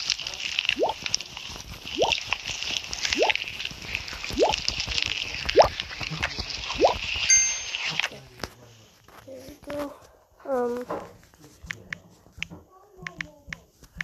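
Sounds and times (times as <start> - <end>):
steady hiss: 0.0 - 9.0.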